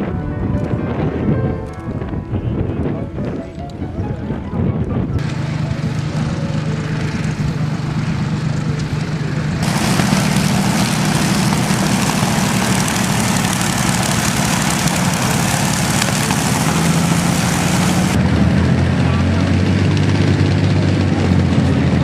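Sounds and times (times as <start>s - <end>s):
propeller aircraft engine droning: 0.0s - 22.0s
loud rushing hiss: 9.6s - 18.2s.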